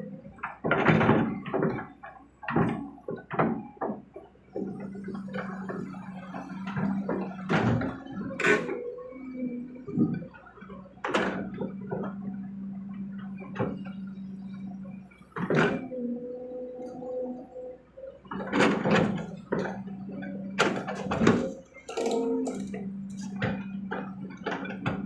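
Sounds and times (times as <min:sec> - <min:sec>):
excavator diesel engine humming: 0:00.0 - 0:25.0
excavator bucket knocks and clanks: 0:00.3 - 0:08.8, 0:20.6 - 0:25.0.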